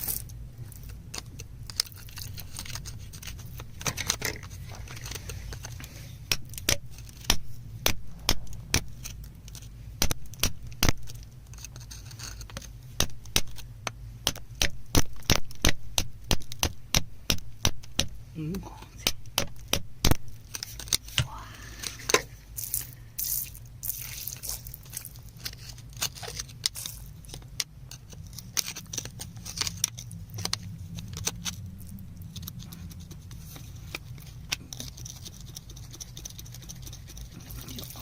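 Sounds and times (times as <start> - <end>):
low hum: 0.0 - 15.0, 18.1 - 38.0
small stones clinking: 21.9 - 32.8.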